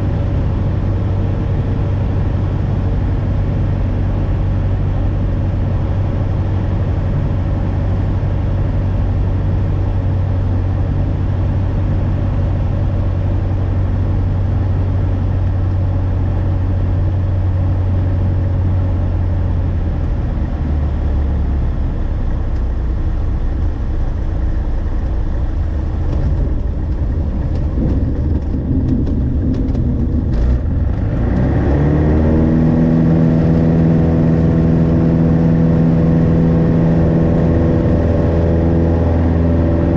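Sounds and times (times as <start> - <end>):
light aircraft piston engine: 0.0 - 39.9
wheels knocking on runway: 26.1 - 30.6.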